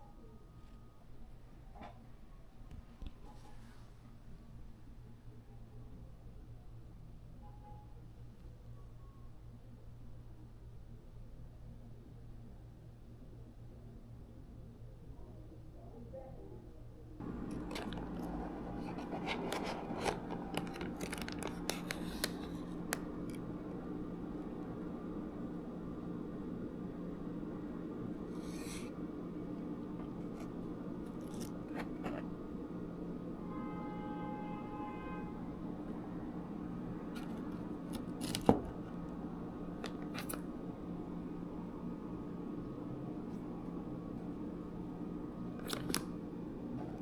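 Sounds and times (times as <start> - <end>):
steady low hum: 13.0 - 47.0
handling clicks and scrapes: 17.2 - 23.5, 29.6 - 32.4, 37.1 - 39.0, 39.8 - 40.4, 45.6 - 46.1.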